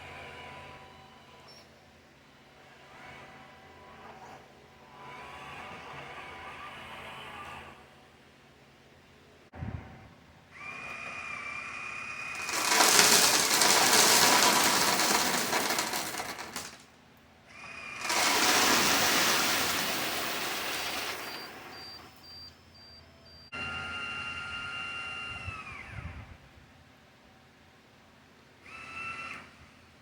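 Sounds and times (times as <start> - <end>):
loose rock pouring: 12.3 - 16.8, 18.0 - 22.1
hydraulic pump whine: 17.5 - 26.4.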